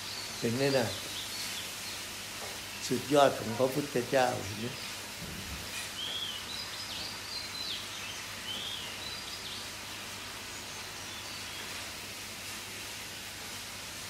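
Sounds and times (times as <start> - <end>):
steady background hiss: 0.0 - 14.0
high bird chirps: 5.8 - 9.8.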